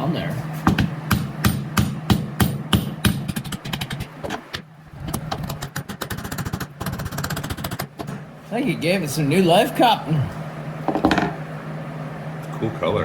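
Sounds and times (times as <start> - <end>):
steady low hum: 0.0 - 13.0
hammer blows: 0.7 - 4.1.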